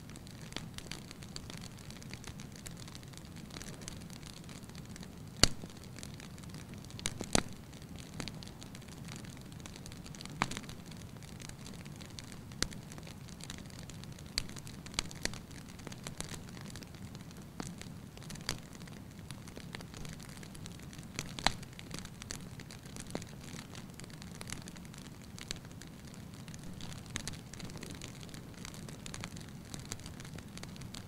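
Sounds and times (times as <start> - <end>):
fire crackling and popping: 0.0 - 31.0.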